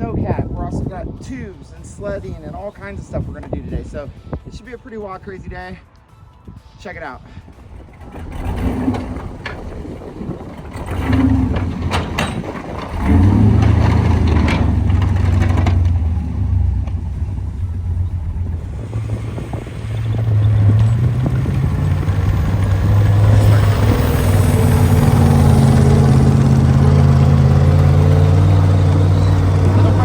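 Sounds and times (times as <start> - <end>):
vehicle engine running: 7.5 - 30.0.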